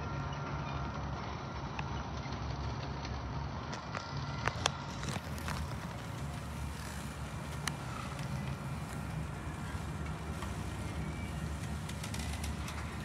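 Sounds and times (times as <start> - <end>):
sharp clicks of train wheels: 1.7 - 13.0
freight train rolling past: 5.3 - 13.0.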